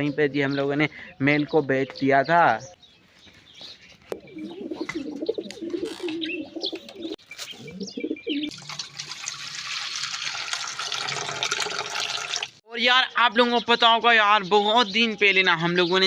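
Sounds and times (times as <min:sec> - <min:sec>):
pigeons cooing: 0:04.1 - 0:08.5.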